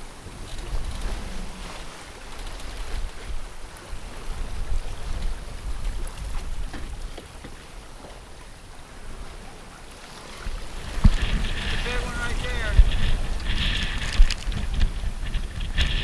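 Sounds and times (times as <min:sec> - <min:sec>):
low surging rumble: 0:00.0 - 0:06.7, 0:10.5 - 0:16.0
water splashing along hull: 0:00.0 - 0:16.0.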